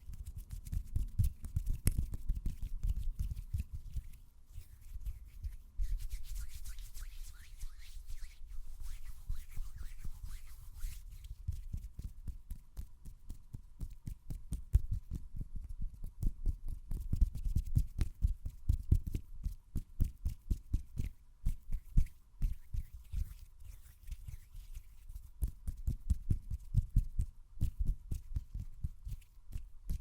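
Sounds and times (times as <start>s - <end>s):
dull pats and taps: 0.3s - 4.2s, 11.1s - 23.4s, 25.4s - 30.0s
hands rubbing: 1.3s - 12.1s, 21.6s - 25.3s.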